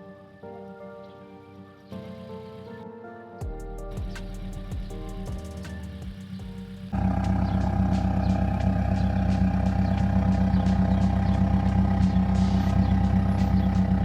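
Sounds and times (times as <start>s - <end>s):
car engine running: 5.3s - 14.0s.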